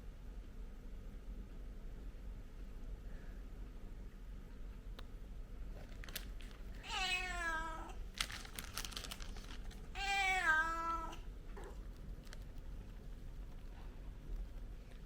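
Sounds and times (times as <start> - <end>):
cat meowing: 6.8 - 8.0, 10.0 - 11.2.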